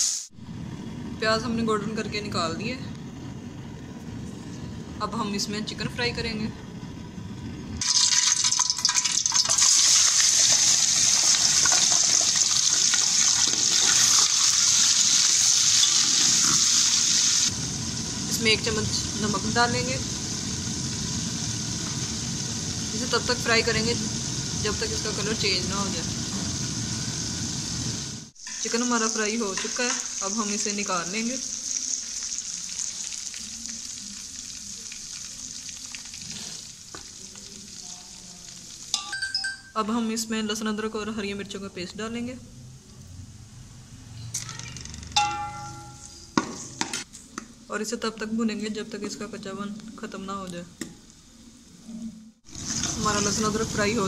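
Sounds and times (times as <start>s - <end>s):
chicken sizzling in hot oil: 0.0s - 0.4s, 7.8s - 39.0s, 52.4s - 54.0s.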